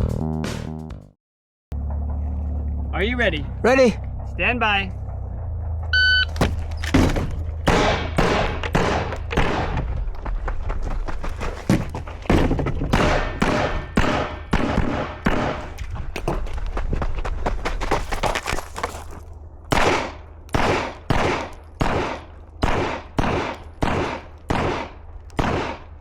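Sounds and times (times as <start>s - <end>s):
shot timer beep: 6.0s - 6.3s
gunshots: 6.4s - 10.0s, 12.3s - 15.8s, 19.7s - 26.0s.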